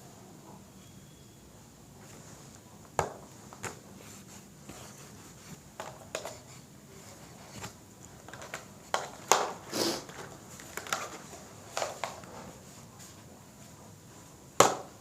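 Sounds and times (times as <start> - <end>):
small objects tapping and clicking: 8.2 - 9.6.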